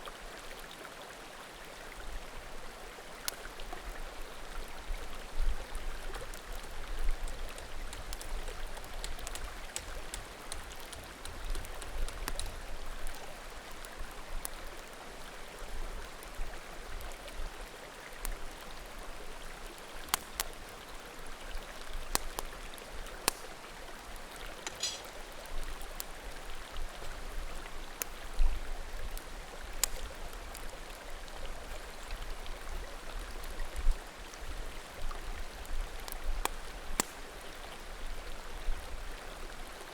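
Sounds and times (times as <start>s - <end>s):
creek flowing: 0.0s - 39.9s
bonfire crackling: 2.6s - 3.8s, 4.5s - 15.0s, 18.2s - 28.4s, 29.0s - 32.0s, 35.0s - 37.4s.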